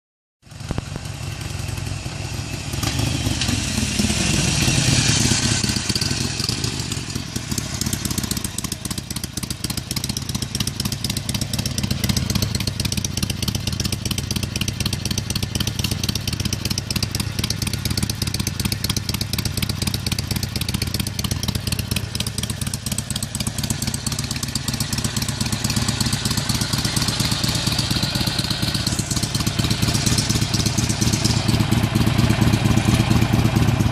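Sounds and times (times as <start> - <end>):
motorcycle engine revving and idling: 0.4 - 33.9.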